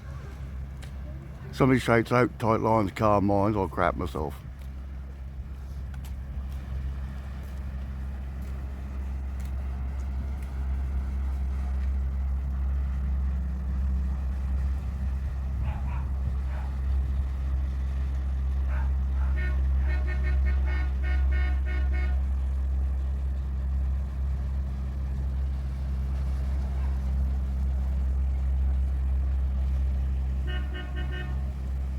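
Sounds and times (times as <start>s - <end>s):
ship engine droning low: 0.0s - 31.9s
ship's horn: 14.0s - 23.3s, 29.6s - 31.9s.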